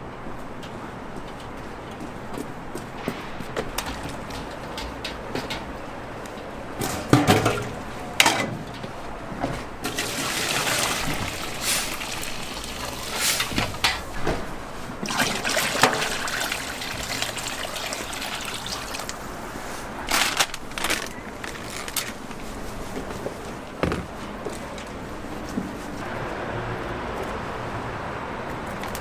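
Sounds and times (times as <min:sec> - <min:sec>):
kitchen utensils clinking: 0:06.8 - 0:08.8, 0:09.8 - 0:14.4
liquid trickling and pouring: 0:09.9 - 0:14.1, 0:15.0 - 0:19.4.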